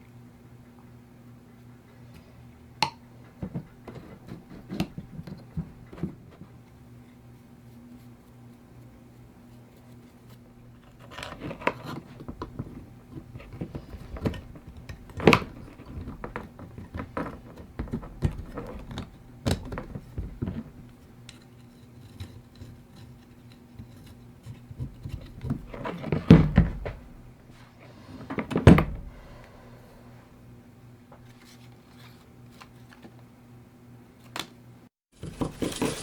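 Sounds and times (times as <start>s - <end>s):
steady low hum: 26.6s - 31.3s
metal objects clinking: 35.2s - 36.0s.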